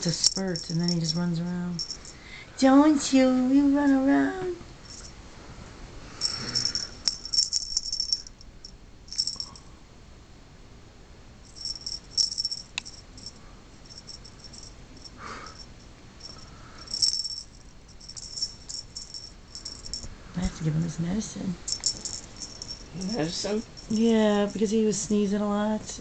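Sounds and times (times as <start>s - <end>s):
rattling toy jingling: 0.0s - 2.3s, 4.8s - 5.2s, 6.2s - 9.6s, 11.5s - 20.1s, 21.7s - 24.6s.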